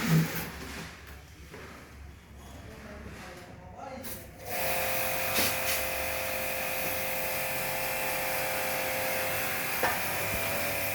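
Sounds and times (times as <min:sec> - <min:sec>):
small machine hissing whine: 0:04.5 - 0:10.9.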